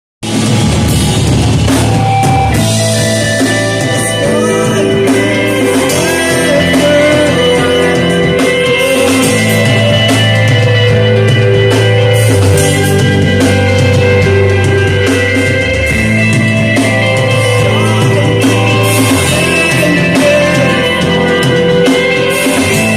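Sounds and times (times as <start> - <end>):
drums: 0.2 - 22.9
electric guitar: 0.2 - 22.9
person singing: 2.5 - 22.9.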